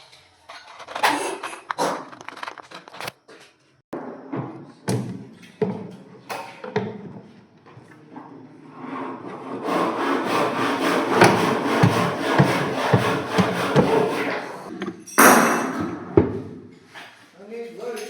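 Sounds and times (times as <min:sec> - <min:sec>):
wood being sawn: 0:09.0 - 0:14.7
sharp knock: 0:11.1 - 0:14.3.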